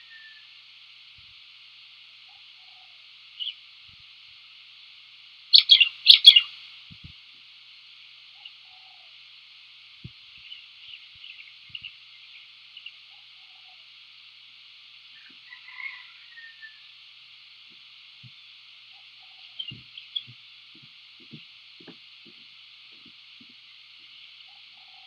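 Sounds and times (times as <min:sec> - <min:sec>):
faint steady high hiss: 0:00.0 - 0:25.0
sharp bird chirps: 0:05.6 - 0:06.5.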